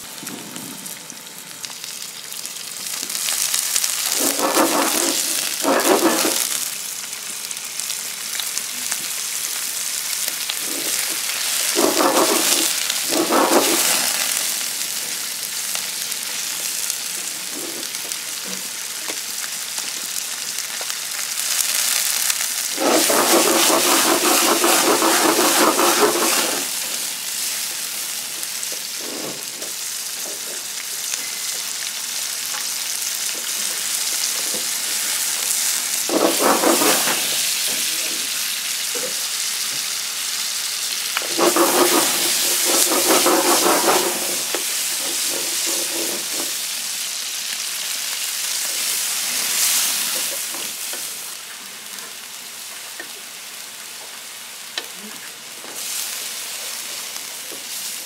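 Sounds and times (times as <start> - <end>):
food sizzling in a pan: 0.0 - 58.0
stirring in a pan: 4.1 - 6.6, 10.6 - 14.4, 22.7 - 26.9, 41.2 - 46.5.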